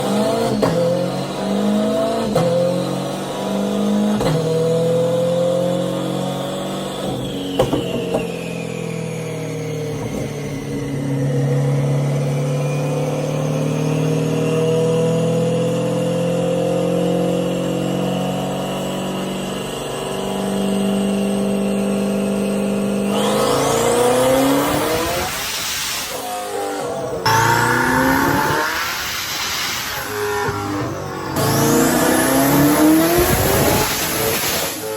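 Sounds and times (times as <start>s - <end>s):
car engine revving on a dyno: 0.0s - 34.9s
high rising whine: 23.1s - 34.9s.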